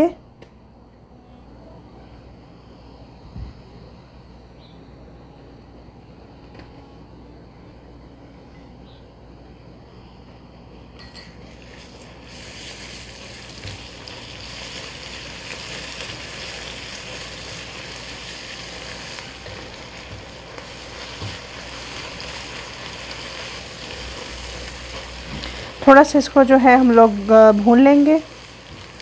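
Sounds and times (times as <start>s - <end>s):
onions sizzling in hot oil: 11.4s - 29.0s.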